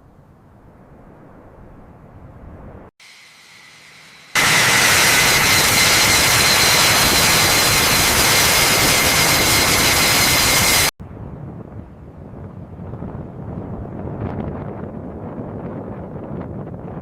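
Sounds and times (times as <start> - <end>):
jet engine roaring and whining: 3.0 - 11.0.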